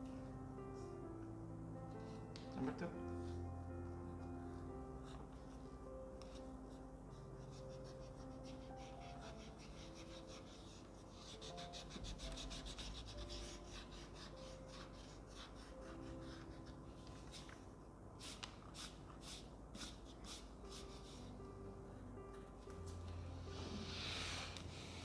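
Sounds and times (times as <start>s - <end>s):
soft background music: 0.0s - 25.0s
pencil scratching on paper: 6.2s - 17.6s, 18.2s - 21.3s.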